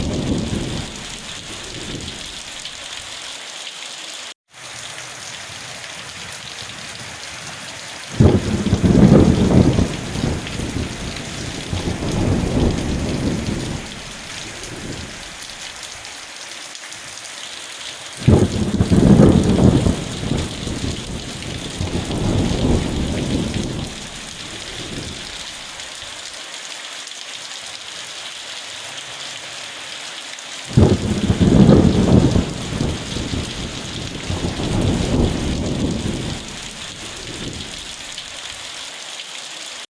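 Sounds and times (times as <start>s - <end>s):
rolling thunder: 0.0s - 2.6s, 8.1s - 15.4s, 18.2s - 25.5s, 30.7s - 38.2s
heavy rain falling: 0.0s - 39.9s.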